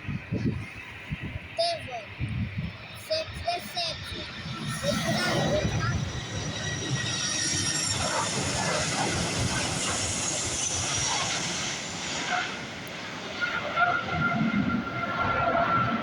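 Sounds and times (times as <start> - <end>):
jet engines and rushing air: 0.0 - 16.0
steady tones: 0.9 - 8.2.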